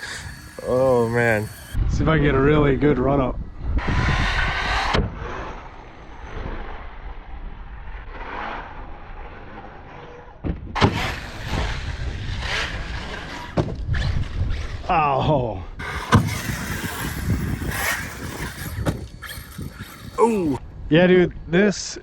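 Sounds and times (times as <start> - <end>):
electric rc truck motor: 0.0 - 1.8, 10.8 - 14.9, 15.7 - 20.6
rc truck landing impact: 10.4 - 14.4, 15.8 - 20.2.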